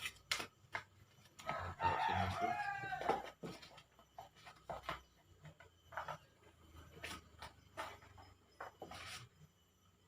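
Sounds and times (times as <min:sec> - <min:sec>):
handling rustles and scrapes: 0:02.2 - 0:09.6.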